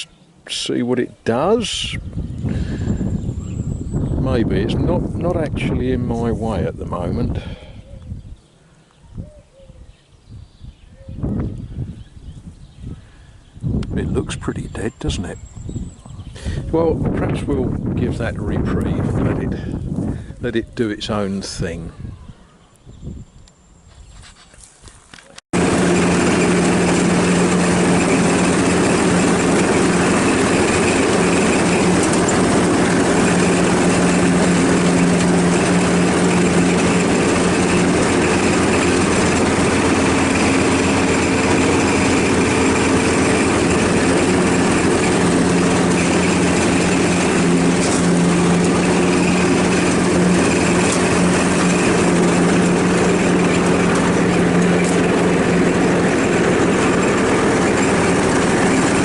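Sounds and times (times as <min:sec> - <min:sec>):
ride-on lawnmower engine running: 0:00.0 - 0:07.8, 0:25.5 - 0:59.0.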